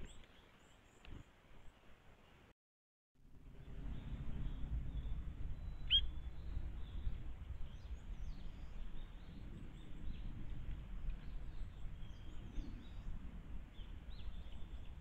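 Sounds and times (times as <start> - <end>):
steady low rumble: 3.2 - 15.0
faint distant bird calls: 3.5 - 15.0.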